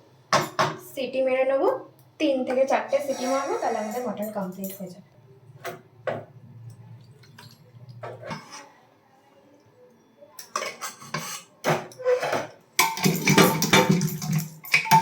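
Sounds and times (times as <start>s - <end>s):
metal utensil scraping a pan: 2.9s - 4.3s, 8.1s - 8.8s, 10.5s - 14.0s.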